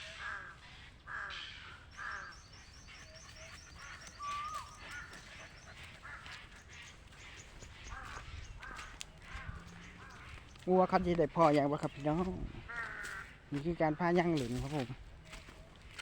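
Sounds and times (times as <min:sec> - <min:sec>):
crows cawing: 0:00.0 - 0:15.9
small bird chirping: 0:02.2 - 0:10.7.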